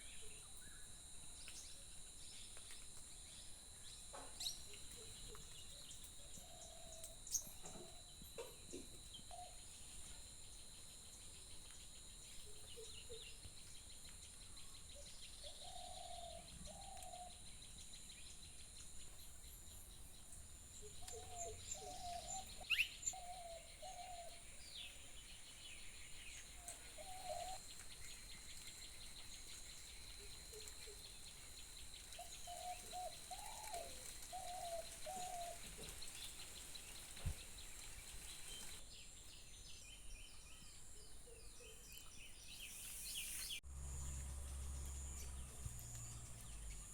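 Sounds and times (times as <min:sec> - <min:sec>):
insects trilling: 0:00.0 - 0:38.8
low hooting or cooing: 0:15.4 - 0:17.5, 0:20.8 - 0:24.5, 0:26.6 - 0:27.6, 0:32.2 - 0:36.0
birds calling: 0:20.8 - 0:38.8.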